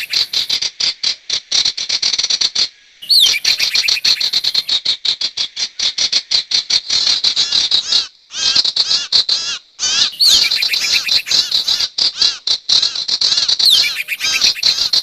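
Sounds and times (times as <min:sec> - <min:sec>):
bird chirping song: 0:00.0 - 0:00.6, 0:03.0 - 0:04.7, 0:09.8 - 0:11.9, 0:13.3 - 0:15.0.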